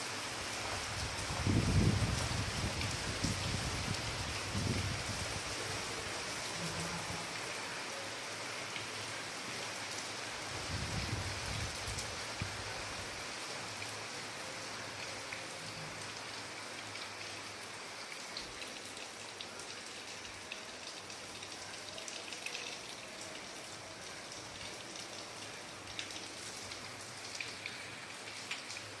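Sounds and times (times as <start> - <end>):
steady rain falling: 0.0 - 29.0
raindrops ticking: 24.3 - 29.0.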